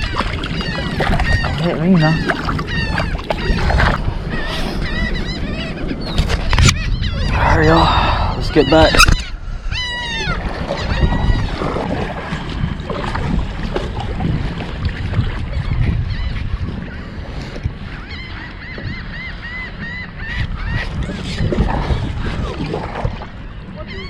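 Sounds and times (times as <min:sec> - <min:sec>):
birds calling: 0:00.0 - 0:11.7, 0:17.8 - 0:21.5, 0:23.3 - 0:24.0
wind buffeting microphone: 0:00.0 - 0:24.0.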